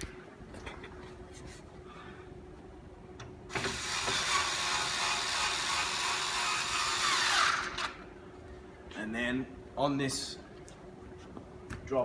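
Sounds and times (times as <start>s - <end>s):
power drill driving a screw: 3.5s - 8.0s.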